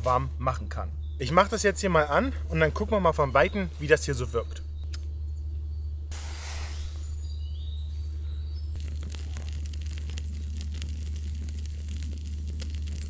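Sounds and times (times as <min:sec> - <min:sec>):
steady low hum: 0:00.0 - 0:13.0
burning wood crackling: 0:06.0 - 0:07.3, 0:08.5 - 0:13.0.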